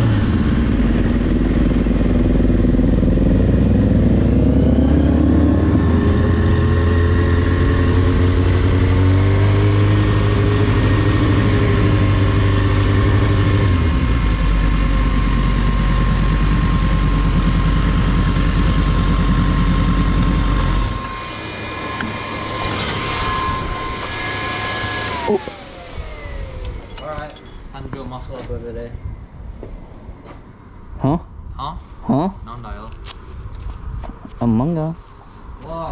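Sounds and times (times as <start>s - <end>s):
motorcycle engine: 0.0s - 28.1s
thin high whine: 10.6s - 28.4s.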